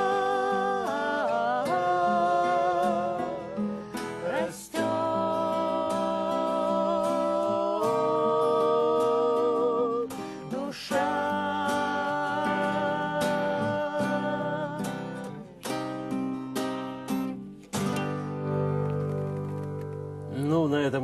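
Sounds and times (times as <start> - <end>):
person singing: 0.0 - 15.6
acoustic guitar: 0.0 - 21.0.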